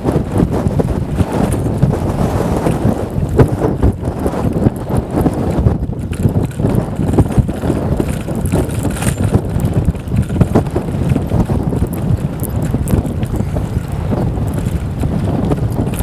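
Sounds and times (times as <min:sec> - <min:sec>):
wind buffeting microphone: 0:00.0 - 0:16.0
small clicks: 0:06.0 - 0:16.0.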